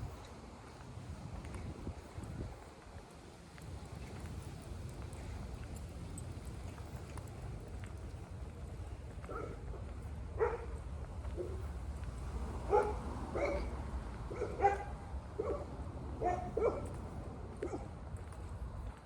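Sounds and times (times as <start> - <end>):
dog barking: 9.3 - 9.8, 10.4 - 10.7, 12.7 - 13.7, 14.3 - 17.0, 17.6 - 17.9.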